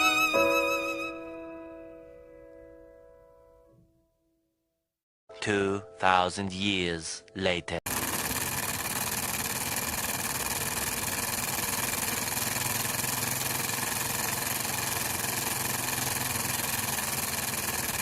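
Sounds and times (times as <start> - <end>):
small engine mechanical whirr: 7.9 - 18.0.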